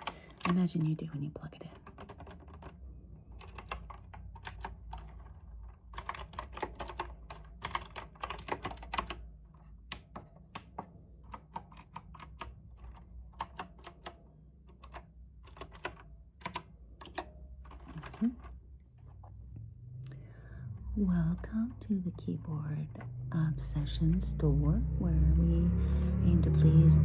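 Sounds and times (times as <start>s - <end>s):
mechanical keyboard typing: 0.0s - 19.3s.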